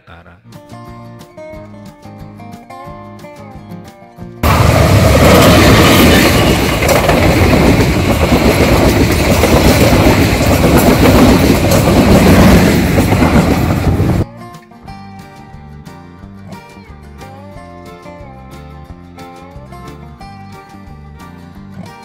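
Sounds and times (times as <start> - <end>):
train passing with rumble: 4.4 - 14.2
wheels rattling on rails: 4.4 - 14.2.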